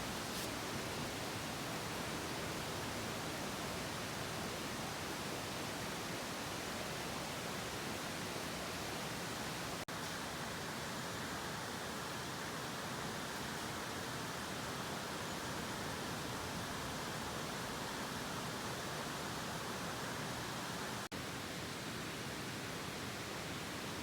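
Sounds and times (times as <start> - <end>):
steady rushing hiss: 0.0 - 2.1.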